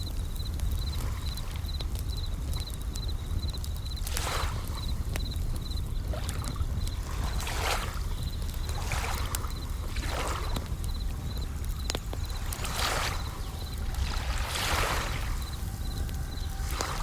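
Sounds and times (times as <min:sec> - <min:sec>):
campfire crackling: 0:00.0 - 0:17.0
crickets trilling: 0:00.0 - 0:17.0
waves washing in: 0:11.6 - 0:17.0.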